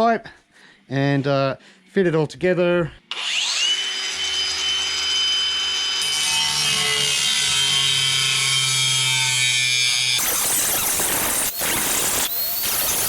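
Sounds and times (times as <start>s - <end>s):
power tool cutting metal pipe: 3.1s - 13.0s.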